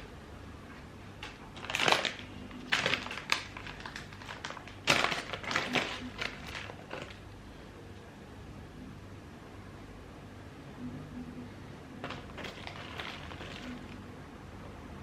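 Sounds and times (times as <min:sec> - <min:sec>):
objects being handled: 0:12.0 - 0:14.0.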